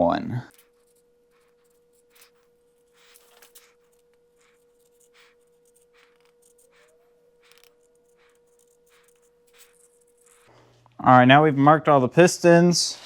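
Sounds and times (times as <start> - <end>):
faint steady hum: 0.0 - 13.0
marker pen scribbling: 0.5 - 10.6.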